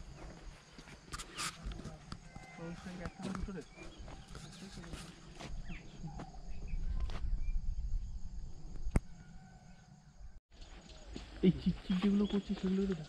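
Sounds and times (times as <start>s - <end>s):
small birds chirping: 2.6s - 9.0s, 10.5s - 13.0s.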